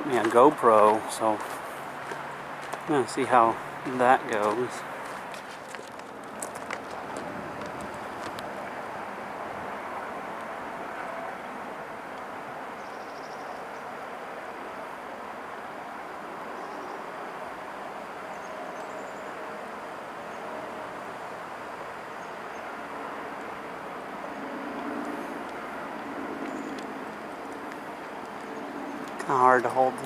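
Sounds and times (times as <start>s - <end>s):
distant highway traffic: 0.0s - 30.0s.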